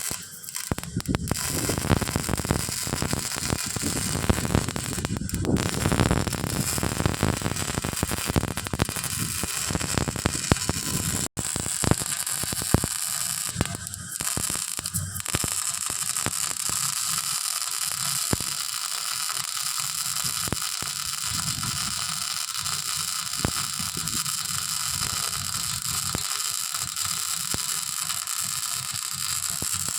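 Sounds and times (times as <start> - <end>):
welding arc crackling: 0.0 - 29.9.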